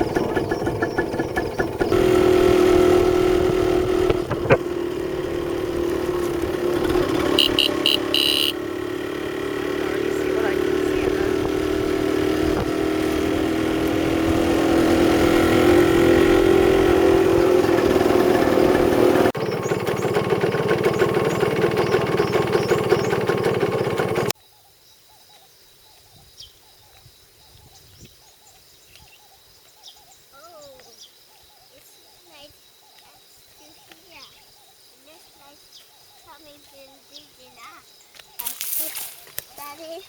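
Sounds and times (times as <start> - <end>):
motorcycle engine running loudly: 0.0 - 24.4
faint bird chirps: 24.4 - 38.6.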